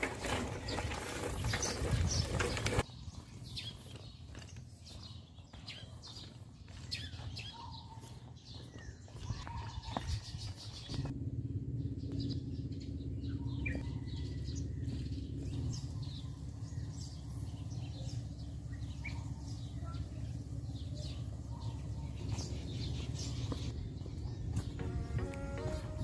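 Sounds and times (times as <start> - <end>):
small birds chirping: 0.2 - 25.3
steady low rumble: 9.2 - 26.0.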